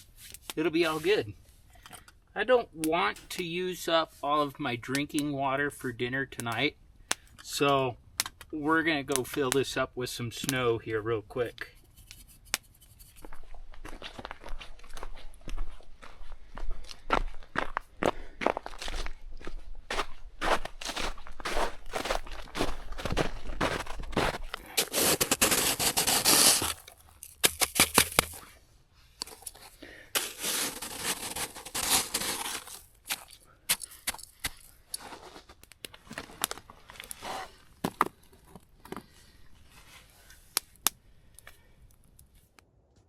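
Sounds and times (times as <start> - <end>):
snow crunching and scraping: 19.9 - 28.6, 29.4 - 33.3, 34.6 - 38.1.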